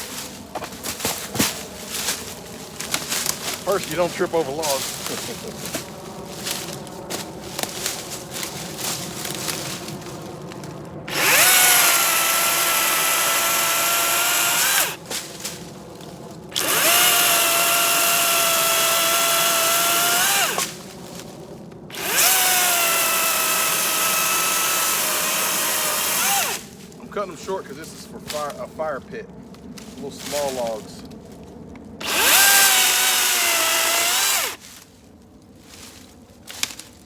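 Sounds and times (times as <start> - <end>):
electric chainsaw cutting logs: 2.8 - 15.5, 16.5 - 21.3, 21.9 - 26.8, 32.0 - 34.8.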